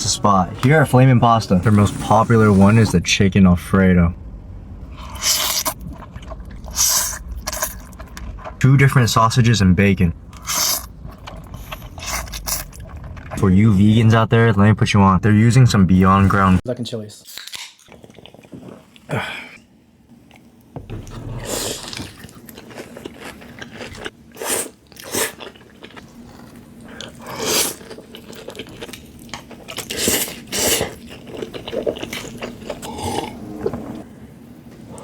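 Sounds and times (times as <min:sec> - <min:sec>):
person chewing food: 0:04.9 - 0:08.6, 0:10.3 - 0:13.4, 0:17.8 - 0:19.1, 0:21.3 - 0:34.1.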